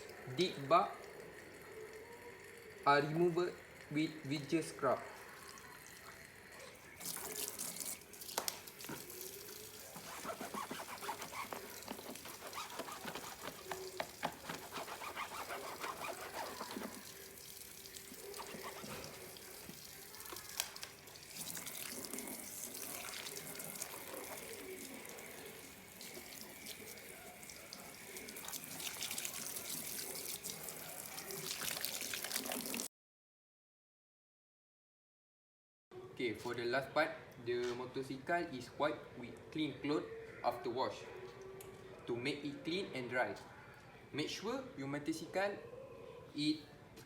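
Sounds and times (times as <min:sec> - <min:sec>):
water splashing over a motorcycle: 0:08.2 - 0:17.3.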